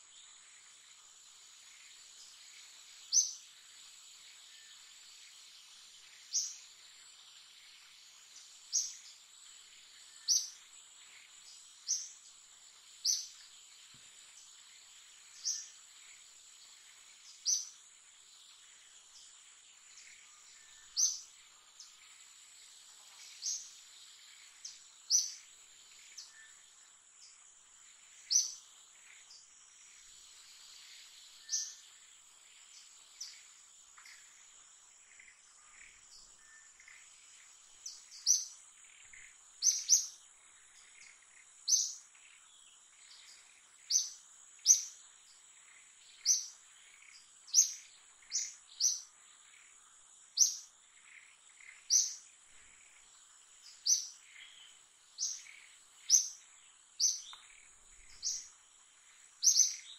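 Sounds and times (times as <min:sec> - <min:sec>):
sharp bird chirps: 0:37.9 - 0:40.2, 0:46.2 - 0:49.1, 0:57.0 - 0:58.5, 0:59.4 - 0:59.9.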